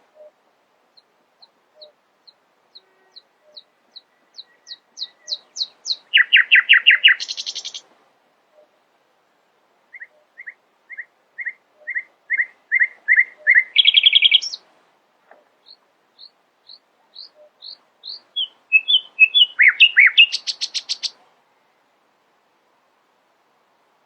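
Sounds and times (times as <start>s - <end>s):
nightingale singing: 0.0s - 7.9s, 9.9s - 14.6s, 15.6s - 21.2s.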